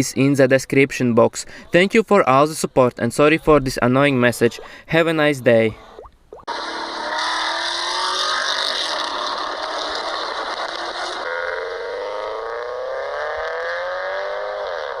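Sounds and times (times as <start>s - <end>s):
car engine accelerating: 6.5s - 15.0s.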